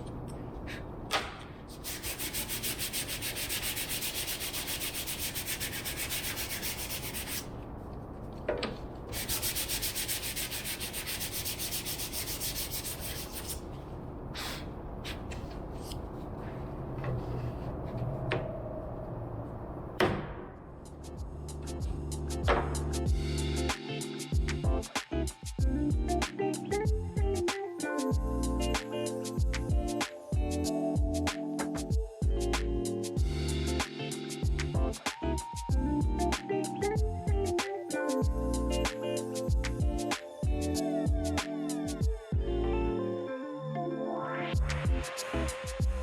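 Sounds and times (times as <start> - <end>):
sandpaper sanding wood: 1.7 - 7.5, 9.1 - 13.6.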